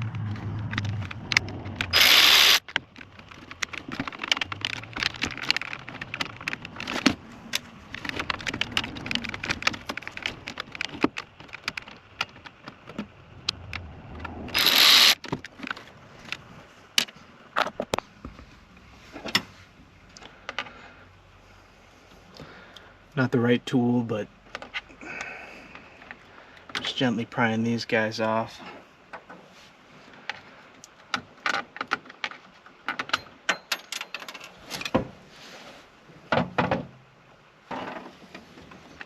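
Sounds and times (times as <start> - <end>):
loud bursts of noise: 0.0 - 2.6, 14.5 - 15.2
hand tools and screws rattling: 31.4 - 35.0.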